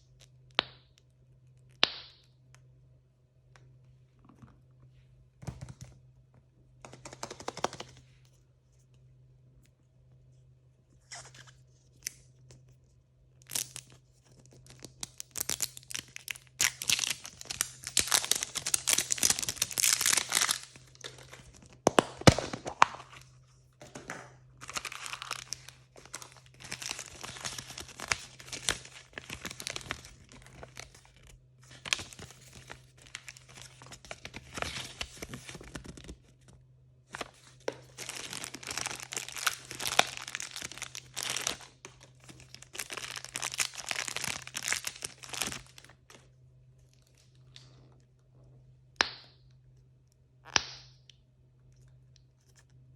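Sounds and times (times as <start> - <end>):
plastic packaging tearing and crinkling: 13.4 - 13.9, 14.6 - 23.2, 24.6 - 36.2, 37.1 - 46.2.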